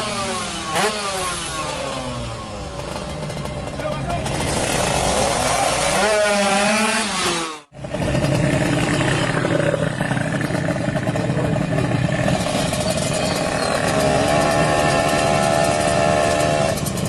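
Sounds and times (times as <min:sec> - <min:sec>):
two-stroke motorcycle engine running: 0:00.0 - 0:17.0.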